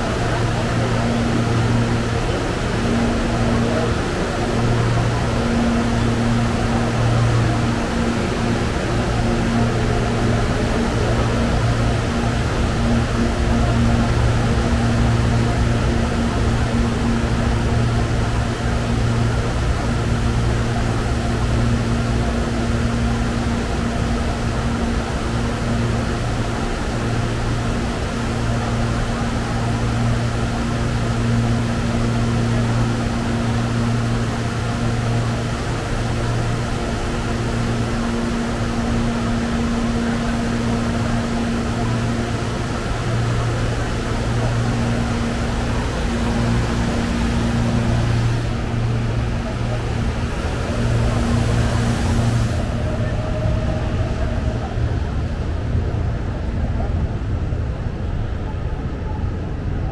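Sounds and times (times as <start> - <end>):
train equipment humming: 0.0 - 59.8
steady electrical tones: 32.5 - 55.4.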